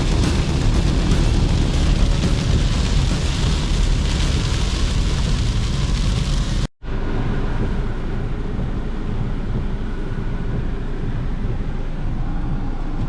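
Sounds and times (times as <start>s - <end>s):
car road noise inside cabin: 0.0s - 6.7s
heavy hiss: 0.0s - 6.7s.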